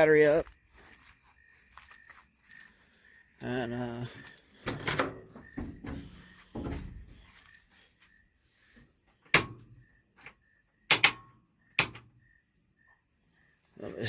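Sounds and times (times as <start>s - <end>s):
crickets chirping: 0.0s - 14.0s
sharp clicks or knocks: 9.3s - 9.7s, 10.9s - 12.1s.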